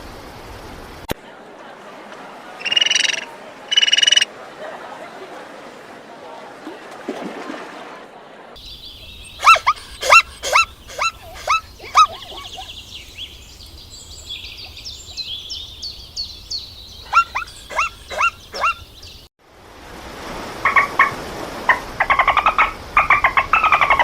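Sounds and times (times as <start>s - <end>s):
high chirping: 2.6s - 4.3s, 8.6s - 19.3s
animal yapping: 9.4s - 12.8s, 17.1s - 18.8s.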